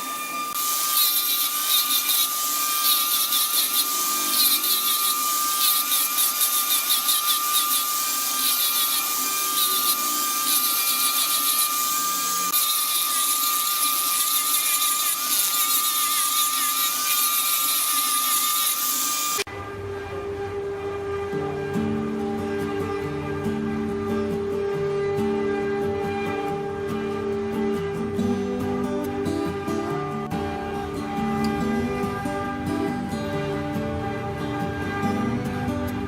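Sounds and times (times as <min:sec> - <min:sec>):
power tool cutting wood: 0:00.0 - 0:19.5.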